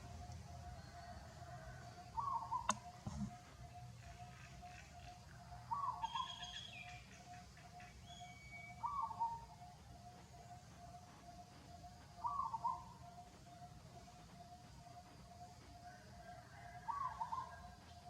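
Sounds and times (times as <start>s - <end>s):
sharp click: 2.7s - 3.3s.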